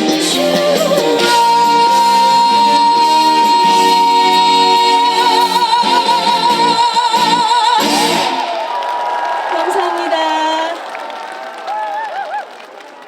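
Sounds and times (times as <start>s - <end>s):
woman singing high note: 0.0s - 8.3s
live backing band chords: 0.0s - 8.6s.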